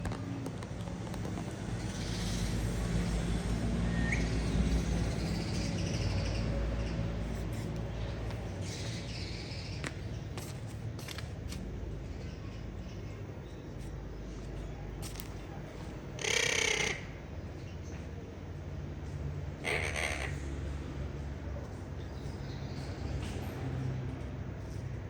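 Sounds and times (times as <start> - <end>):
birds chirping: 0.0 - 18.2.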